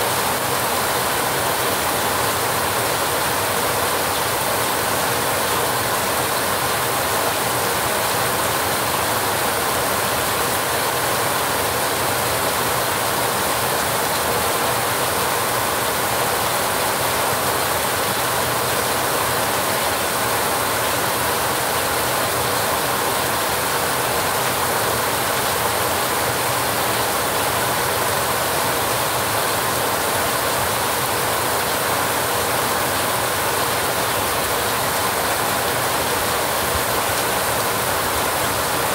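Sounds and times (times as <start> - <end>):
heavy rain on a metal roof: 0.0 - 38.9.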